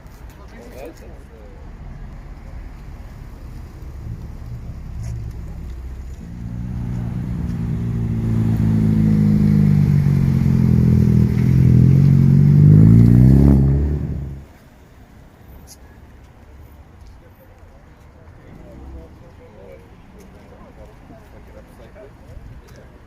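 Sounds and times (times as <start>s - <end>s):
car engine and exhaust: 1.0s - 19.8s.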